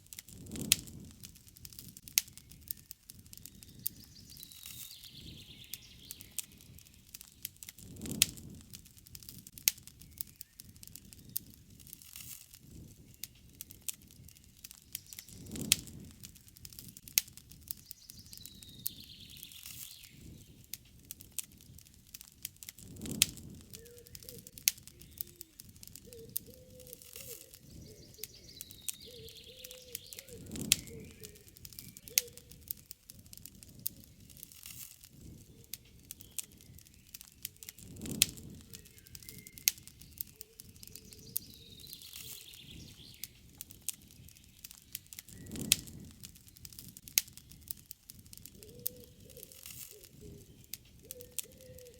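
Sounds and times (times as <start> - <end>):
campfire crackling: 0.0 - 51.9
fire popping sharply: 0.0 - 51.9
soft low rush of fire: 0.0 - 51.9
bird calling: 23.7 - 32.6, 38.6 - 43.3, 48.5 - 51.9.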